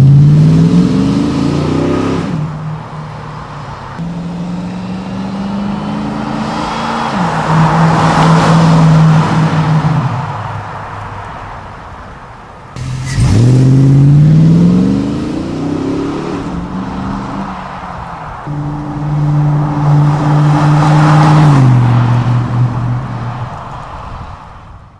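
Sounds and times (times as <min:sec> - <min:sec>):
car engine and exhaust revving: 0:00.0 - 0:11.5, 0:12.7 - 0:24.9.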